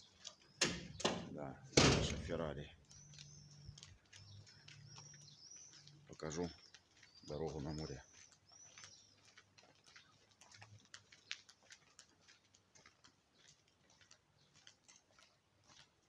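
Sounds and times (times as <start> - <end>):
high bird chirp: 0.0 - 9.2.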